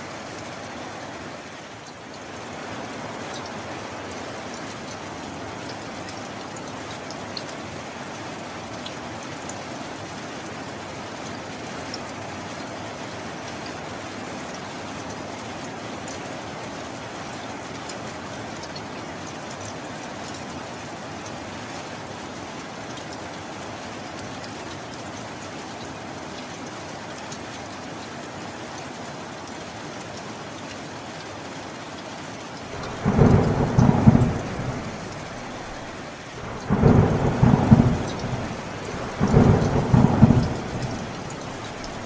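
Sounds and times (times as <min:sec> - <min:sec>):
steady rain: 0:00.0 - 0:42.0
thunder rumbles: 0:32.8 - 0:42.0.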